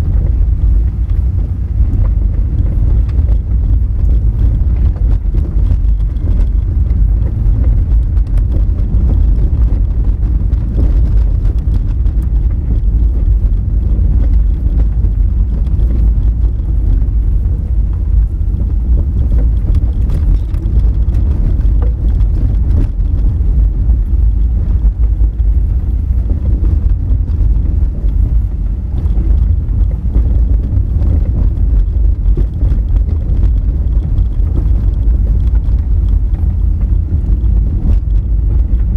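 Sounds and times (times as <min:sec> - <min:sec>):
car rumbling over gravel road: 0:00.0 - 0:38.9
small ticks of stones: 0:04.0 - 0:23.3.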